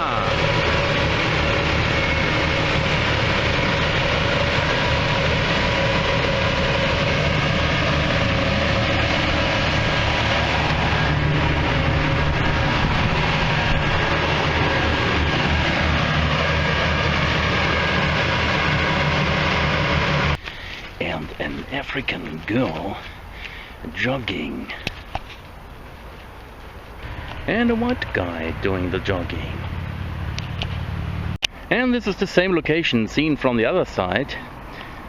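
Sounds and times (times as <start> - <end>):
ship diesel engine humming: 0.0 - 32.6.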